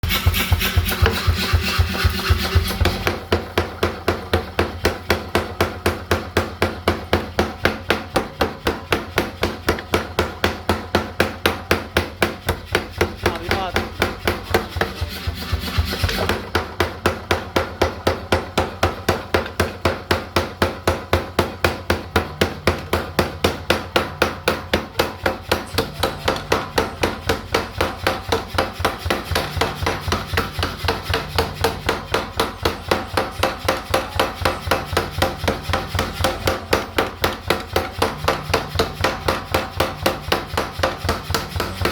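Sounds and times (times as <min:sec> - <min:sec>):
rubbing sound: 0:00.0 - 0:03.4, 0:12.5 - 0:16.6
hammer blows on metal: 0:00.0 - 0:41.9.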